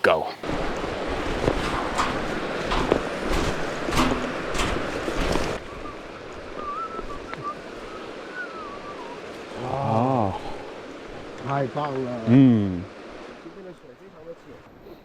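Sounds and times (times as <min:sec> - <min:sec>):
rushing mountain stream: 0:00.0 - 0:14.9
sharp knocks: 0:01.4 - 0:05.6
faint high whistled call: 0:05.6 - 0:10.1.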